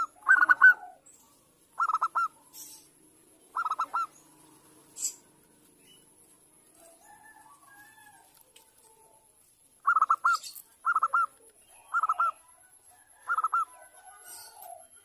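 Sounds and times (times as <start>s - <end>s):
dove cooing: 0.0s - 5.5s, 9.8s - 15.0s.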